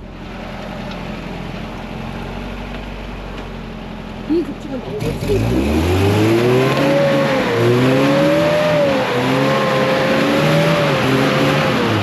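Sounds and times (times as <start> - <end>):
engine revving hard: 5.0 - 12.0.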